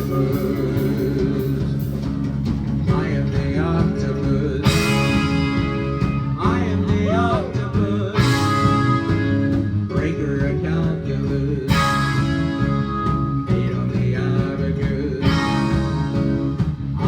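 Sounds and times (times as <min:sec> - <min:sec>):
live band with guitar: 0:00.0 - 0:17.0.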